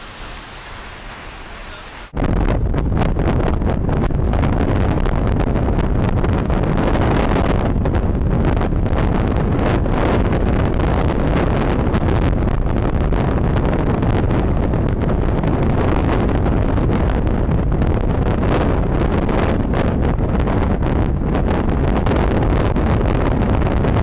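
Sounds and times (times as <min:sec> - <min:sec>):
loud rushing noise: 0:00.0 - 0:02.7
wind buffeting microphone: 0:00.0 - 0:24.0.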